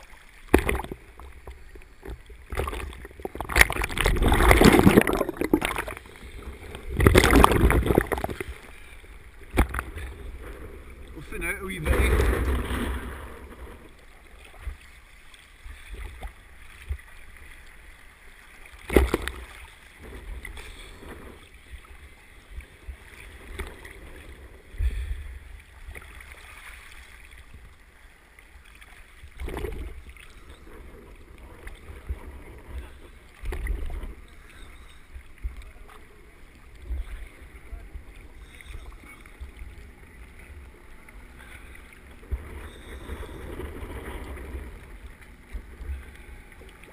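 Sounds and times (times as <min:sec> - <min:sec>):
underwater exhaled bubbles: 0:00.0 - 0:11.2.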